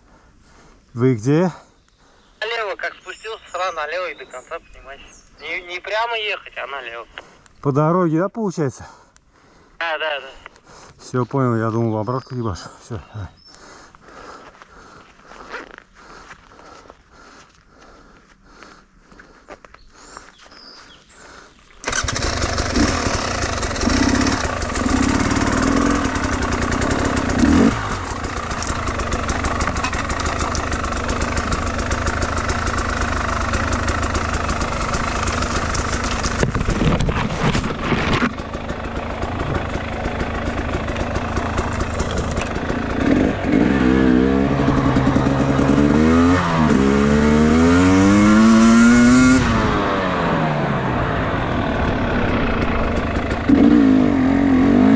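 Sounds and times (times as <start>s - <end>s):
motorcycle engine revving: 21.8s - 54.9s.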